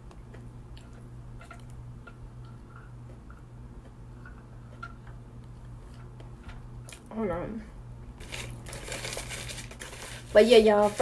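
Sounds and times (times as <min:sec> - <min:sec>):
quiet chewing: 0:00.0 - 0:07.1
steady low hum: 0:00.0 - 0:11.0.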